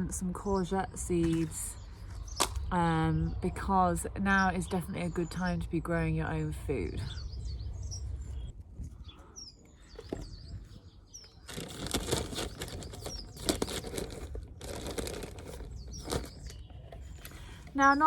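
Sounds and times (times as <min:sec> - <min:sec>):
small birds chirping: 0:00.0 - 0:18.0
rustling and crackling: 0:09.7 - 0:18.0.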